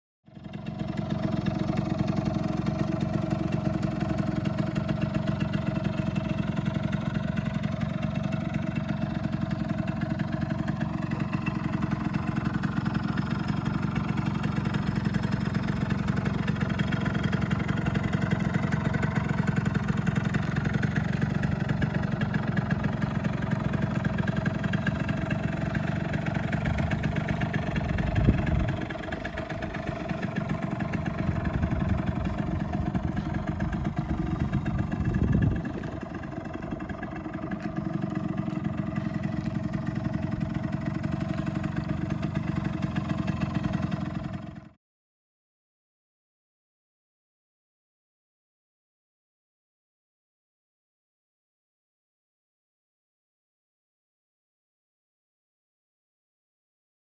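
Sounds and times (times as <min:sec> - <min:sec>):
scooter engine idling: 0:00.3 - 0:44.8.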